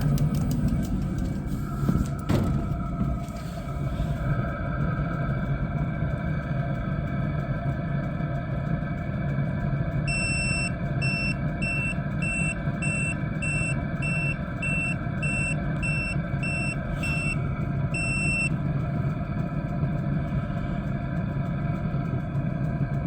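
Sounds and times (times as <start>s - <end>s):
diesel heater humming: 0.0s - 23.0s
high electronic beeps: 10.1s - 17.4s, 18.0s - 18.5s.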